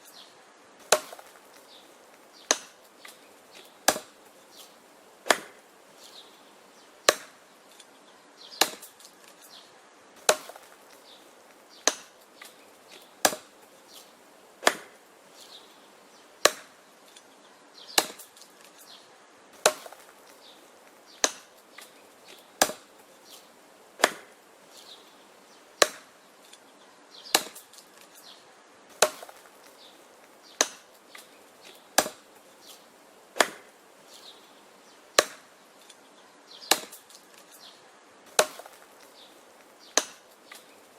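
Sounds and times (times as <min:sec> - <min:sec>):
wood being chopped: 0:00.8 - 0:05.6, 0:07.0 - 0:07.4, 0:08.5 - 0:09.5, 0:10.2 - 0:15.0, 0:16.4 - 0:17.2, 0:17.9 - 0:18.8, 0:19.6 - 0:24.9, 0:25.8 - 0:26.2, 0:27.3 - 0:33.7, 0:35.2 - 0:35.9, 0:36.6 - 0:37.6, 0:38.3 - 0:40.8.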